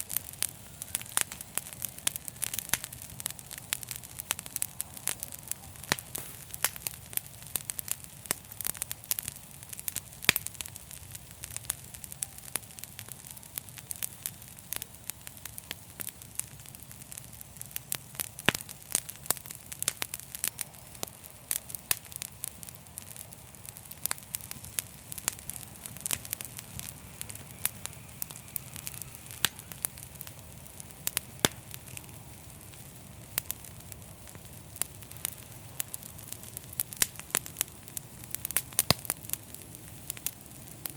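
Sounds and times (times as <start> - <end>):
fireplace fire crackling: 0.0 - 40.9
low rumble of flame: 0.0 - 40.9.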